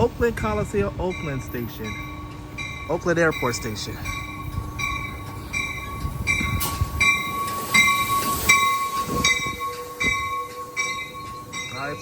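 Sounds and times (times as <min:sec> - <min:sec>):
train wheels rumbling on rails: 0:00.0 - 0:12.0
ringing strike: 0:01.2 - 0:12.0.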